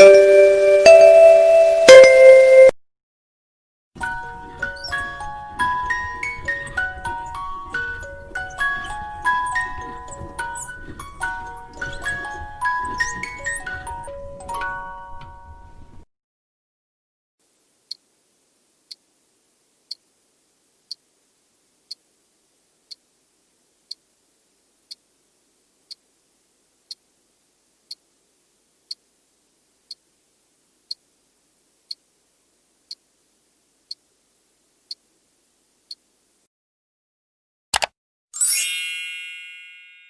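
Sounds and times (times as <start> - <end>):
faint hiss: 0.0 - 2.7, 17.4 - 36.5
clock ticking: 4.4 - 14.8.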